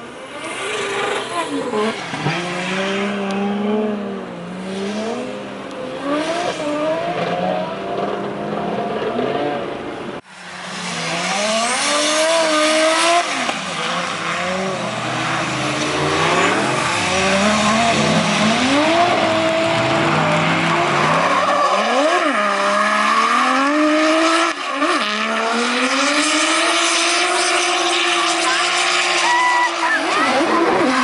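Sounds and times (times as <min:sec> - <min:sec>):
car engine revving hard: 0:10.7 - 0:31.0.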